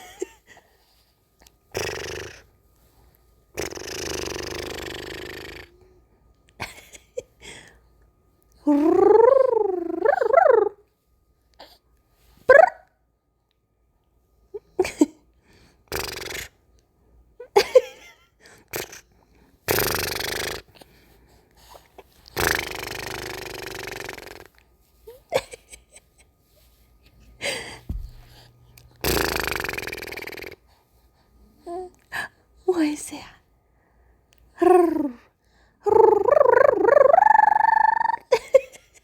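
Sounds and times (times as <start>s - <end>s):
mouth blowing and sputtering: 22.3s - 24.5s, 27.9s - 30.6s.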